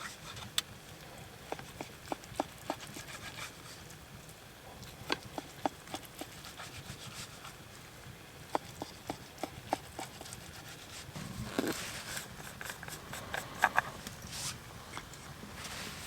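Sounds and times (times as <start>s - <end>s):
scraping rustle: 10.8s - 16.0s.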